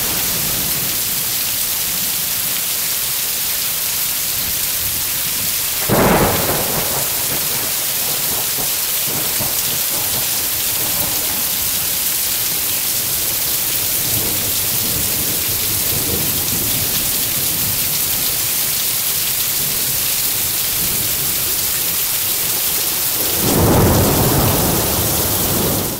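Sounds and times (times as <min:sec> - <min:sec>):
heavy rain hissing: 0:00.0 - 0:25.9
thunder rumbling: 0:05.7 - 0:17.8, 0:22.9 - 0:25.9.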